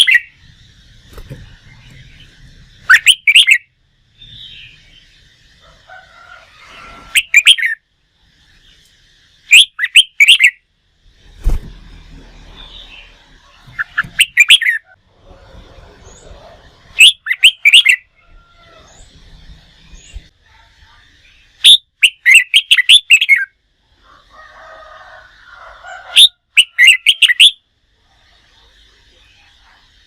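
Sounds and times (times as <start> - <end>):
bird chirping and whistling: 0.0 - 0.4, 1.8 - 4.8, 7.1 - 7.8, 9.5 - 10.6, 13.7 - 15.0, 17.0 - 18.1, 21.6 - 23.5, 26.2 - 27.6.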